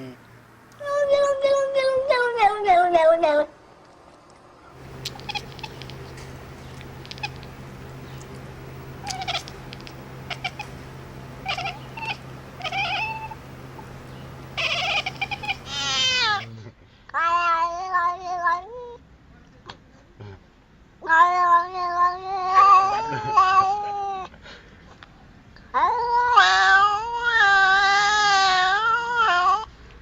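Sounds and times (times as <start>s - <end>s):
steady low hum: 4.7s - 16.7s
cat meowing: 4.9s - 10.8s, 11.4s - 13.4s, 14.5s - 16.5s.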